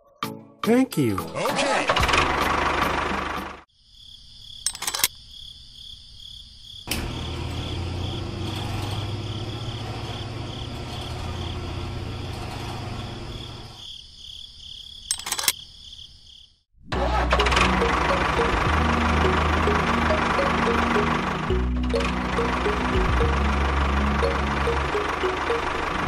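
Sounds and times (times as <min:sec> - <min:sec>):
low humming whir: 0:06.9 - 0:13.8, 0:16.9 - 0:26.0
high pulsing electronic tone: 0:17.4 - 0:26.0.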